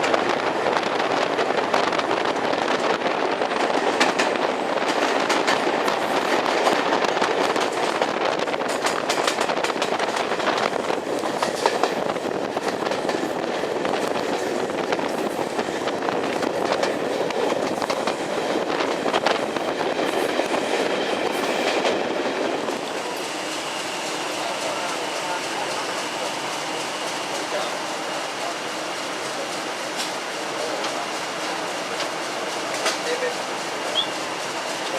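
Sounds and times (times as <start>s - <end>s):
train rolling rumble: 0.0s - 34.9s
wheels clicking over rail joints: 3.5s - 19.4s.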